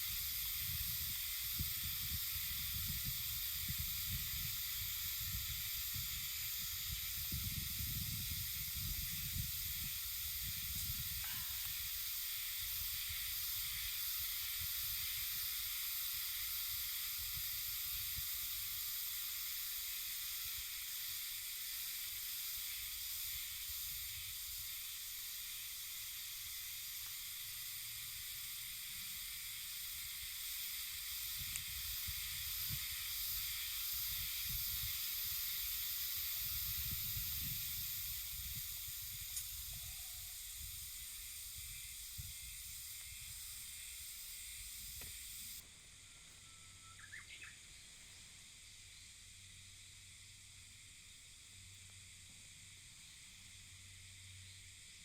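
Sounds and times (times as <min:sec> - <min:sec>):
wind rumble on microphone: 0:00.0 - 0:11.6, 0:36.2 - 0:43.4
high-pitched hiss: 0:00.0 - 0:55.0.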